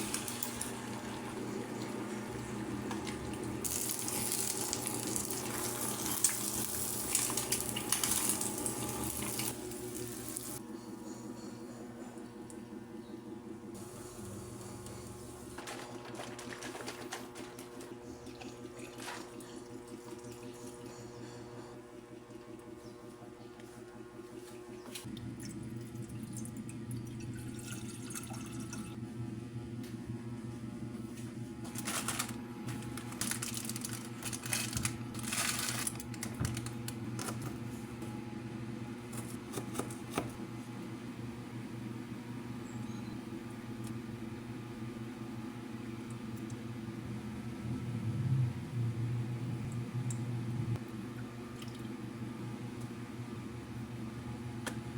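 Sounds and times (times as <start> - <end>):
water running from a tap: 0.0 - 10.6
steady low hum: 0.0 - 54.9.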